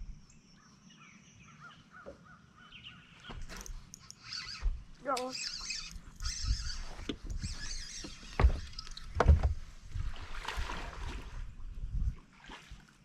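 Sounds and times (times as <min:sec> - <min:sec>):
knocks and bumps on a boat: 0:07.0 - 0:10.7.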